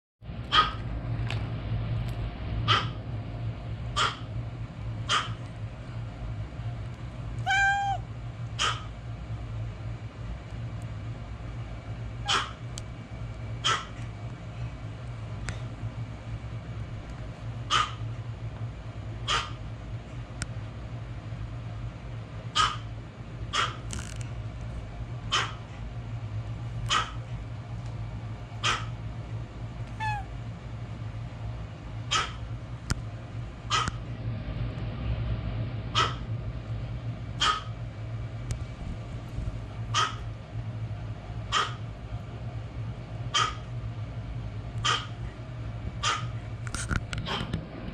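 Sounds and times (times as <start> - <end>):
steady low hum: 0.2 - 47.9
cat meowing: 7.4 - 8.8, 29.9 - 30.3.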